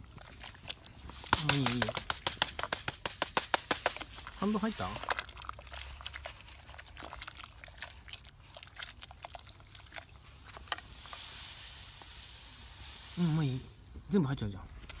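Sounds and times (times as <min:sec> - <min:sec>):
campfire crackling: 0:00.0 - 0:14.2
fire snaps and pops: 0:00.6 - 0:05.4
steady hiss: 0:01.2 - 0:05.0, 0:10.6 - 0:14.4.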